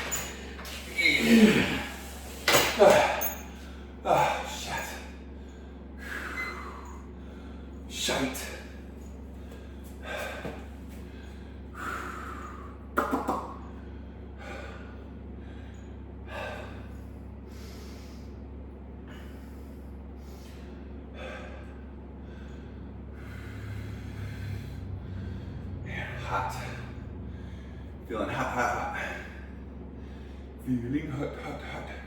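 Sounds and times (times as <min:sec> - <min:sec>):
man breathing hard: 0:00.0 - 0:13.0, 0:13.6 - 0:28.0, 0:28.9 - 0:30.6
low hum: 0:00.0 - 0:32.0.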